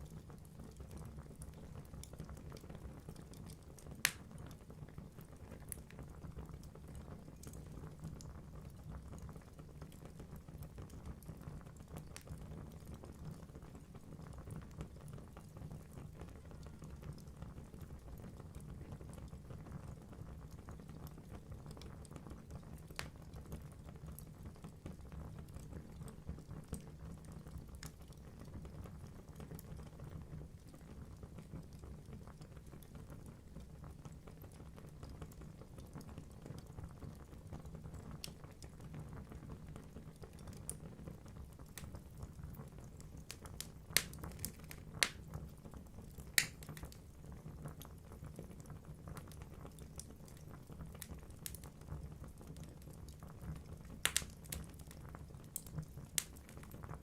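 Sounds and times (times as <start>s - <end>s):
wood fire burning: 0.0s - 57.0s
sharp pops from fire: 4.0s - 4.6s, 22.9s - 23.2s, 43.2s - 45.4s, 46.2s - 47.0s, 54.0s - 56.8s.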